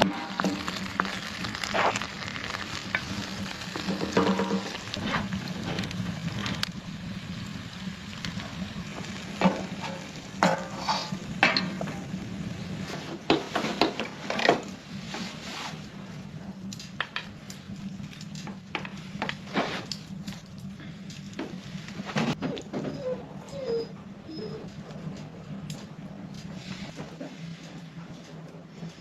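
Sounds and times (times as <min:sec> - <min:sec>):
utensil scraping a pan: 0:00.0 - 0:05.4, 0:09.4 - 0:12.1
food sizzling in a frying pan: 0:00.0 - 0:14.0.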